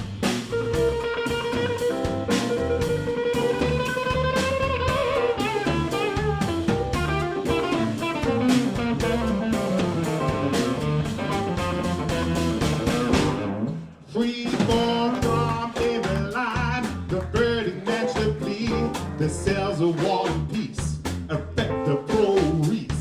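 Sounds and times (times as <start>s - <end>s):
bass: 0.0s - 23.0s
drums: 0.0s - 23.0s
lead electric guitar: 0.5s - 13.9s.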